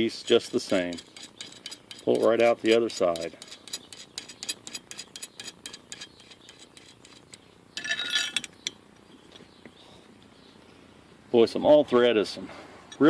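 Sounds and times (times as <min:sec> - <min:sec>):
metallic clatter with ringing: 0:07.8 - 0:08.8.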